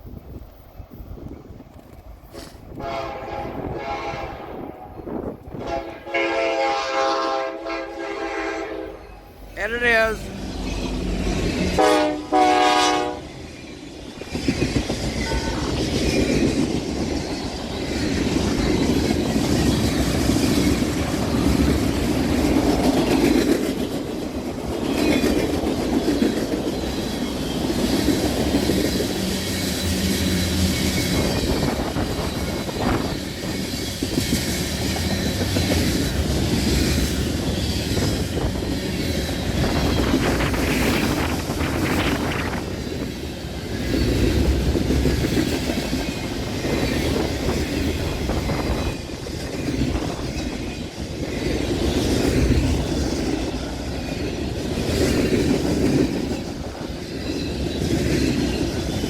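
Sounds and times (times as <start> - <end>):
freight train wheels rumbling: 0.0 - 59.0
locomotive air horn: 2.8 - 4.8, 5.6 - 9.0, 11.8 - 13.3, 15.2 - 15.7.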